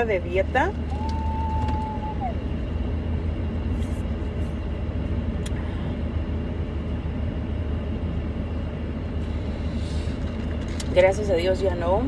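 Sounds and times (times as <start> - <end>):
car cabin rumble: 0.0 - 5.6.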